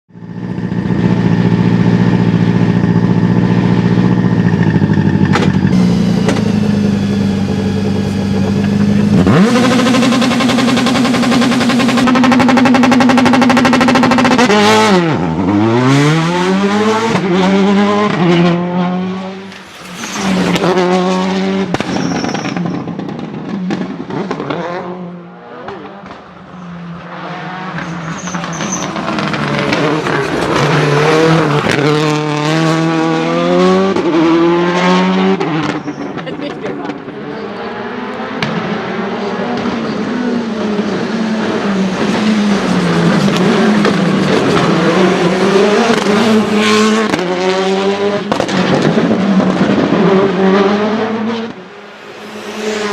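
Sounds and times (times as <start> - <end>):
rally car engine revving: 0.1 - 52.9
exhaust pops and crackles: 3.9 - 6.8, 21.7 - 24.6, 25.6 - 26.3, 48.3 - 50.0.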